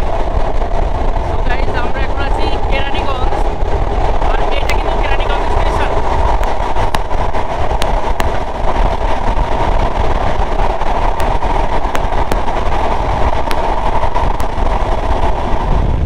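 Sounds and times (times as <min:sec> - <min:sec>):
train wheels rumbling on rails: 0:00.0 - 0:16.0
sharp clicks: 0:05.5 - 0:14.8.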